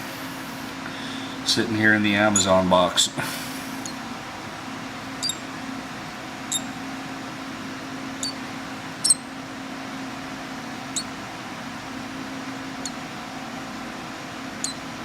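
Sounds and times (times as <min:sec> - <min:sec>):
steady low hum: 0:00.0 - 0:15.0
hatchling bird cheeping: 0:02.4 - 0:02.6, 0:03.8 - 0:04.0, 0:05.2 - 0:05.5, 0:06.4 - 0:06.8, 0:08.2 - 0:09.4, 0:10.9 - 0:11.2, 0:12.8 - 0:13.0, 0:14.6 - 0:14.9.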